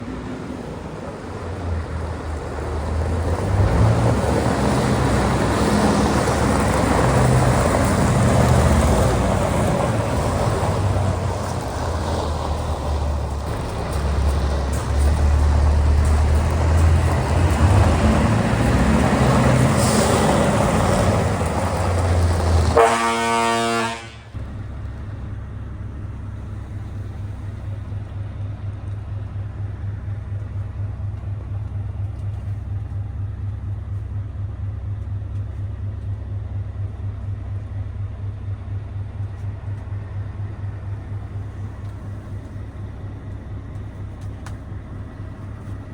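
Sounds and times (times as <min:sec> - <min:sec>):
truck diesel engine running: 0:00.0 - 0:45.9
truck horn blast: 0:22.6 - 0:24.4.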